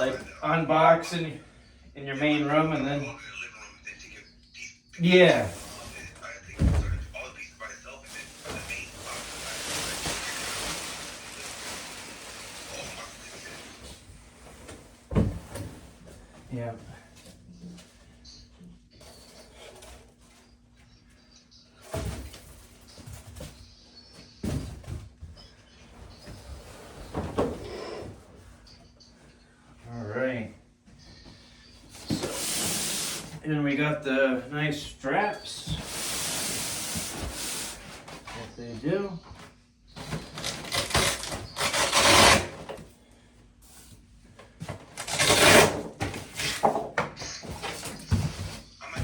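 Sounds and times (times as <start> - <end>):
packaging rustling and scraping: 8.1 - 14.0, 40.0 - 42.8, 45.0 - 46.6.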